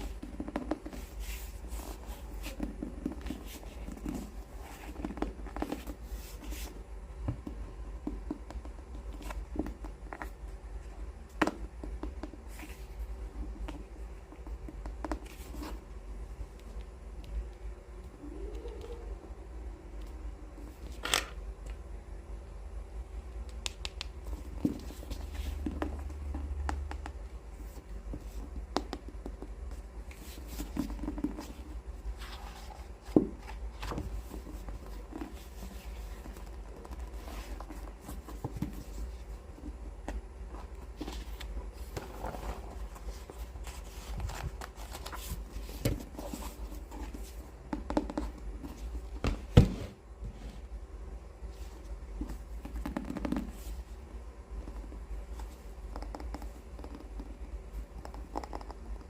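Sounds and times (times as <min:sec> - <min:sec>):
fingertips tapping on books: 0:00.0 - 0:10.5, 0:11.2 - 0:15.8, 0:23.5 - 0:31.6, 0:32.2 - 0:49.7
steady low hum: 0:00.0 - 0:59.0.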